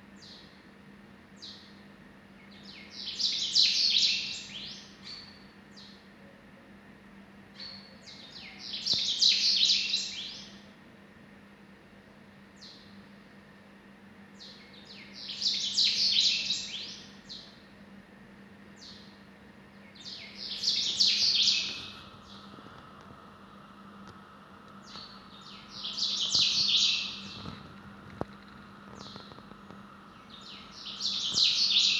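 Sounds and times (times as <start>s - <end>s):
faint low hum: 4.3s - 31.9s
bird chirping: 7.6s - 10.6s, 14.4s - 17.6s, 19.8s - 22.6s, 24.8s - 31.9s.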